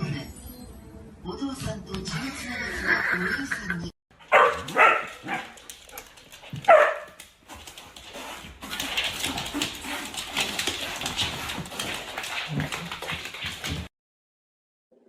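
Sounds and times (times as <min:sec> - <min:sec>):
dog barking: 0:04.2 - 0:05.6, 0:06.6 - 0:07.2
rustling and clattering: 0:04.3 - 0:13.9.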